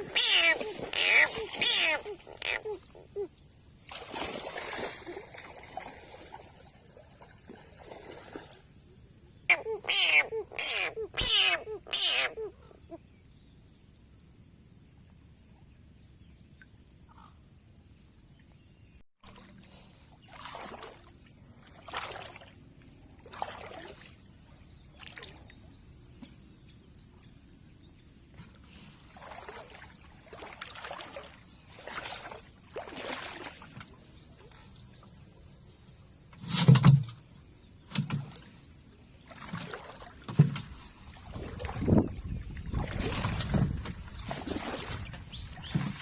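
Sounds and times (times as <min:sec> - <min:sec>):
water splashing and sloshing: 0:00.0 - 0:08.9, 0:19.2 - 0:46.0.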